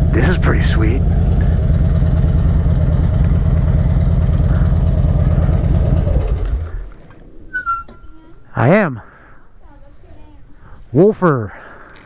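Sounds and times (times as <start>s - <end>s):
motorcycle engine idling: 0.0s - 7.1s.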